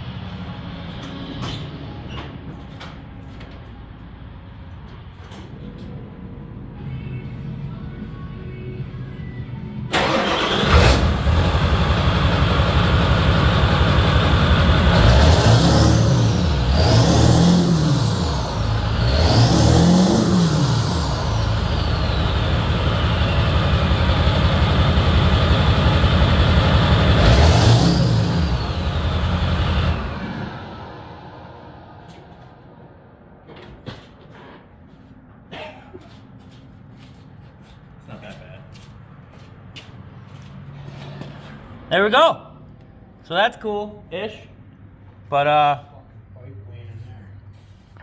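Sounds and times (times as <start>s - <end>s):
diesel engine revving: 9.9s - 33.4s
diesel engine cranking and starting: 9.9s - 34.5s.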